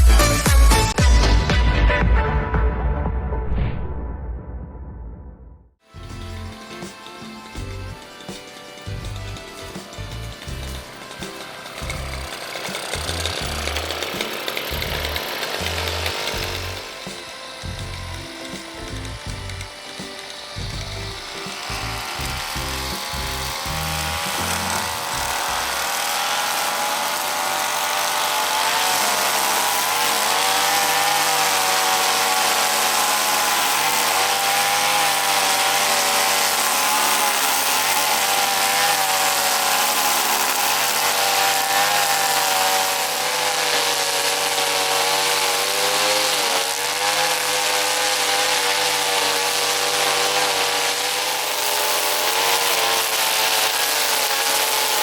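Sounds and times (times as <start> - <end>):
background music with bass beat: 0.0 - 3.4
brush cutter engine running: 6.0 - 55.0.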